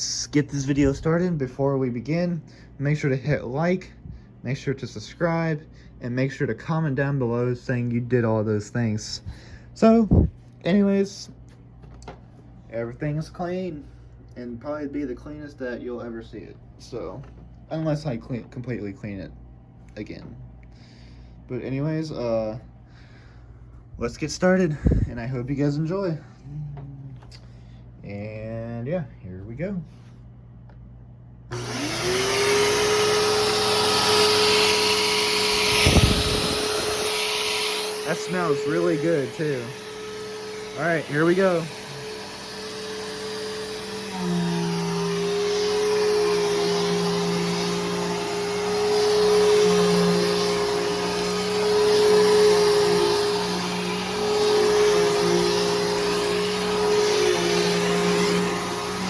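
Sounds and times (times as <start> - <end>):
vacuum cleaner motor whine: 31.5 - 59.0.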